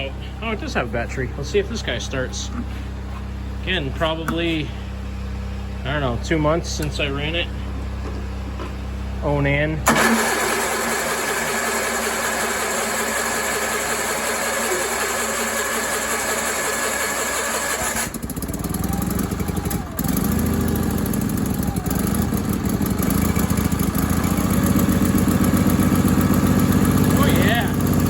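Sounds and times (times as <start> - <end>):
electric starter cranking engine: 9.8 - 28.0
small engine running: 9.8 - 28.0.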